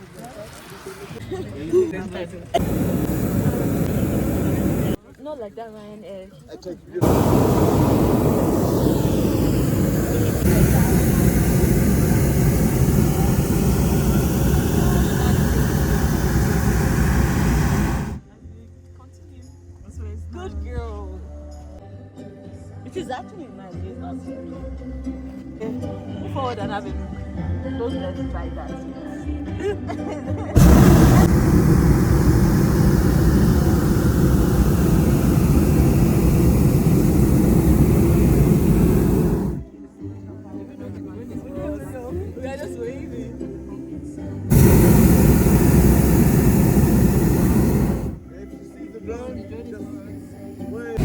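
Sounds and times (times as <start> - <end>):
propane burner blast: 2.6 - 5.0, 7.0 - 18.2, 30.6 - 39.6, 44.5 - 48.4.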